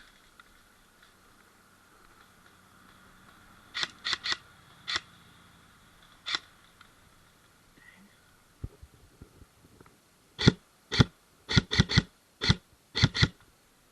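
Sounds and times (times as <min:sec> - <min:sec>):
airsoft gun shots: 0:10.4 - 0:13.3.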